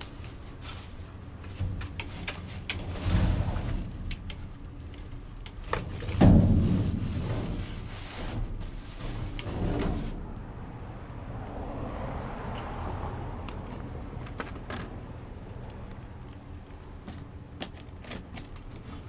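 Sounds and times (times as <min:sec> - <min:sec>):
clicks and knocks with rustling: 0:00.0 - 0:10.2, 0:13.6 - 0:15.0, 0:17.0 - 0:19.0.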